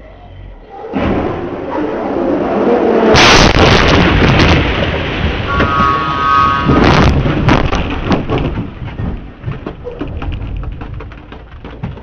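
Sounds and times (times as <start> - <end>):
fireworks bangs: 3.1 - 8.8.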